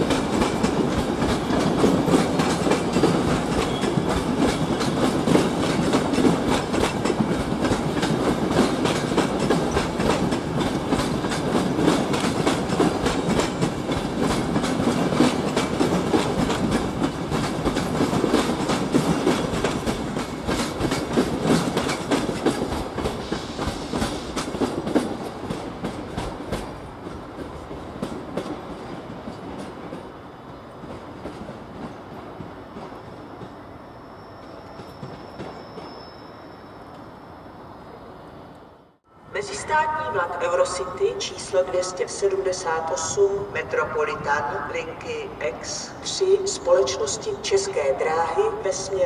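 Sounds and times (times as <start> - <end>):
train wheels clattering over rail joints: 0.0 - 30.0.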